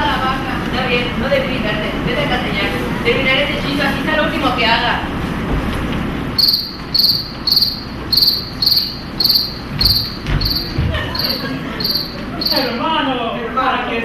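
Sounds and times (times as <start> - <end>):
cricket chirping: 6.4 - 12.8.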